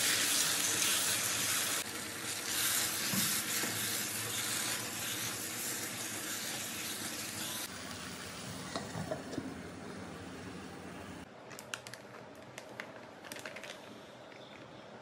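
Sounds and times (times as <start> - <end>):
meat sizzling in a pan: 0.0 - 9.2.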